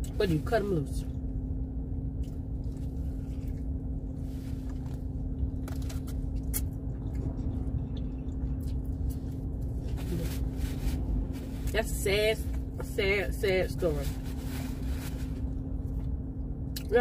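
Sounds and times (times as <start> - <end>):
low hum inside a car: 0.0 - 17.0
person biting and chewing: 5.5 - 9.7.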